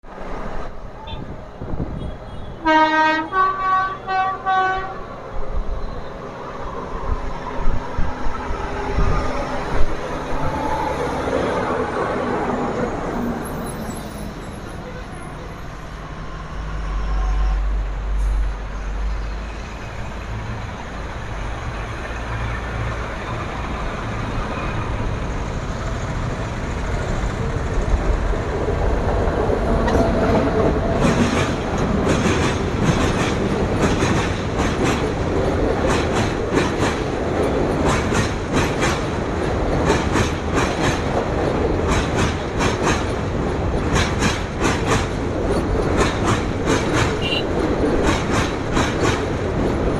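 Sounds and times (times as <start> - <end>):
train low rumble: 0.1 - 49.9
train wheels clattering over rail joints: 29.1 - 49.9.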